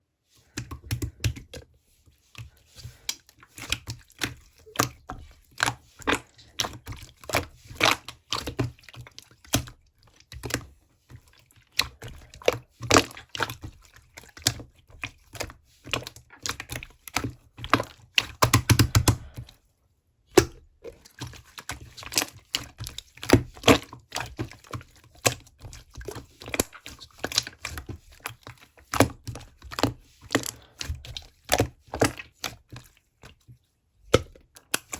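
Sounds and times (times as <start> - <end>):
rapid close-up clicks and taps: 18.2 - 19.2.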